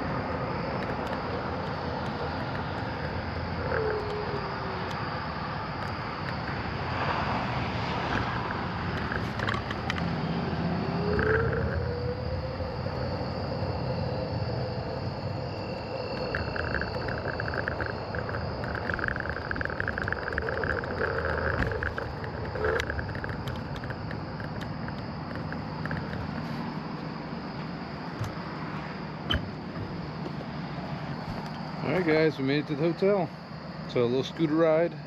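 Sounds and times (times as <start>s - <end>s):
wind and road noise: 0.0s - 35.0s
scooter motor running: 7.5s - 12.0s, 15.4s - 27.0s
high pulsing chirp: 9.7s - 33.3s.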